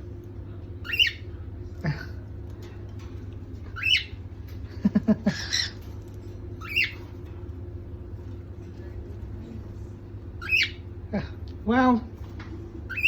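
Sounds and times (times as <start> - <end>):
steady low hum: 0.0 - 13.0
cockatiel squawking: 0.9 - 1.2, 3.8 - 4.1, 6.6 - 7.0, 10.4 - 10.8.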